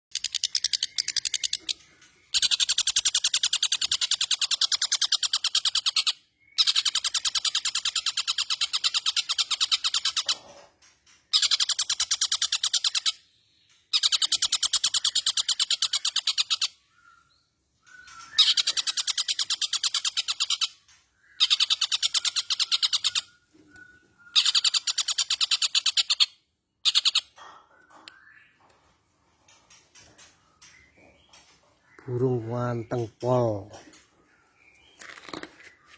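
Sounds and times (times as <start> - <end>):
shrike rattling trills: 0.1 - 17.0, 17.8 - 23.5, 24.2 - 28.4.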